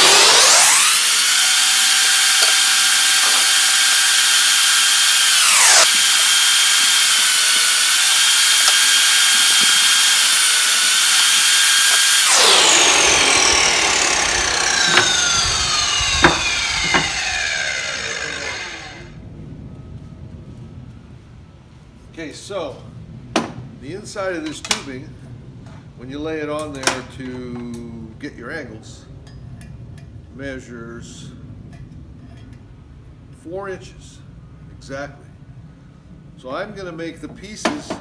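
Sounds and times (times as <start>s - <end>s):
sharp clicks: 0.0s - 4.0s, 5.1s - 19.0s
electric cutting tool whining: 0.0s - 19.1s.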